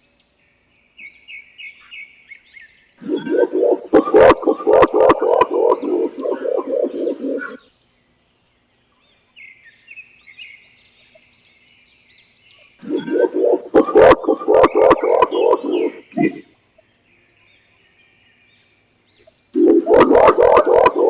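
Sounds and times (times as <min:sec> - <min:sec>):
faint high chirps: 0:03.0 - 0:07.6, 0:12.8 - 0:16.5
pigeon deep hooting: 0:03.0 - 0:07.6, 0:12.8 - 0:16.4, 0:19.6 - 0:21.0.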